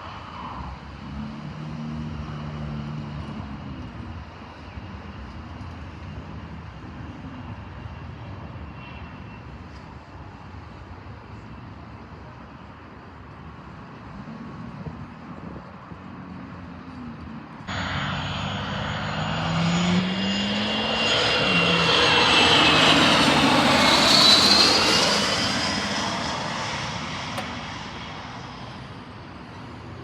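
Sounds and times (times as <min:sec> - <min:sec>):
aircraft engine running: 0:17.6 - 0:30.0.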